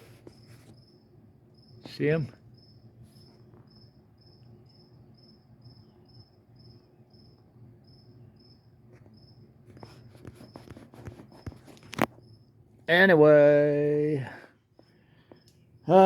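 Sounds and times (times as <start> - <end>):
faint rustling: 0.0 - 0.9, 8.9 - 12.2
cricket chirping: 0.0 - 12.8, 13.4 - 16.0.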